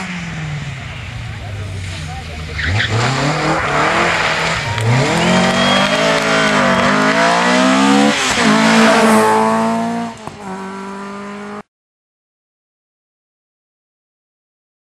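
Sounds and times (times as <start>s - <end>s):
rally car engine revving: 0.0s - 11.7s.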